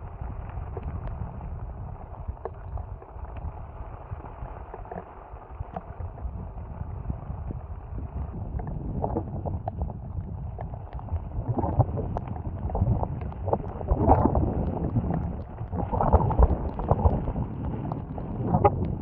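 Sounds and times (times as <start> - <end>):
wind gusting over microphone: 5.7 - 19.0.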